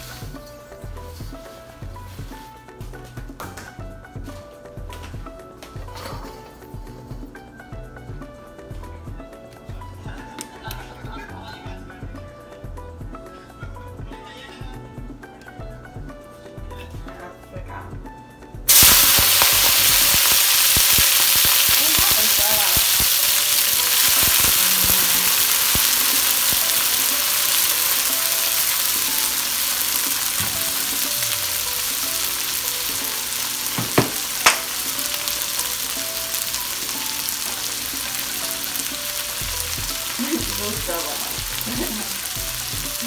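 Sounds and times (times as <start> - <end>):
vegetables sizzling in hot oil: 18.7 - 43.0.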